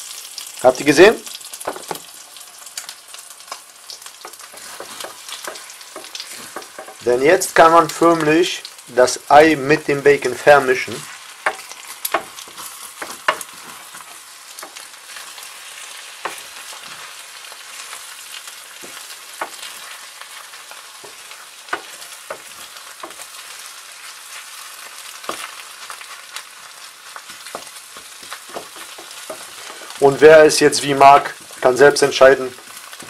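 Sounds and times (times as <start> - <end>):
eggs and bacon sizzling: 0.0 - 33.0
wooden spatula knocking pan: 1.6 - 2.1, 4.2 - 7.1, 11.4 - 14.8, 16.2 - 16.7, 18.8 - 19.9, 21.0 - 23.4, 27.2 - 30.1.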